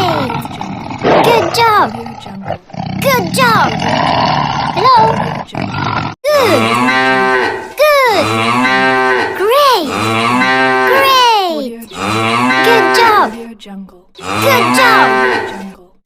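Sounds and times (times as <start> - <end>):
cow mooing ringtone: 6.4 - 7.6, 10.0 - 11.1, 12.0 - 13.3, 14.2 - 15.7.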